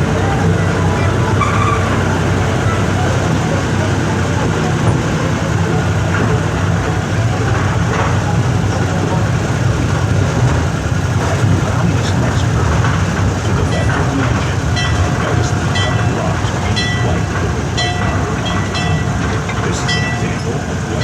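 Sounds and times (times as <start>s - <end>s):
high ringing squealing tones: 0.0s - 6.0s, 13.6s - 21.0s
rail clatter: 0.0s - 21.0s
ride train rumbling on track: 0.0s - 21.0s.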